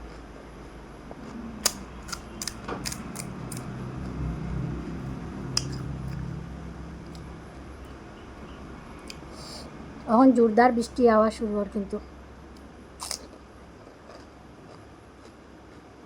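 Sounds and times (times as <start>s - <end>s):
crunchy shells being chewed: 0.0s - 4.2s, 4.9s - 6.3s, 7.0s - 8.0s, 12.6s - 16.0s.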